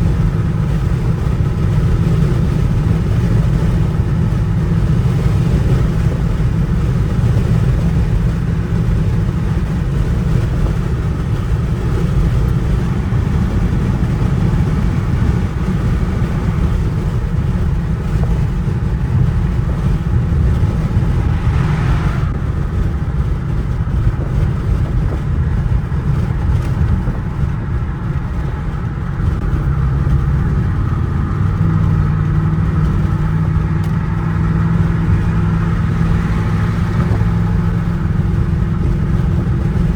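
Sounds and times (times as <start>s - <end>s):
car engine and exhaust: 0.0s - 39.9s.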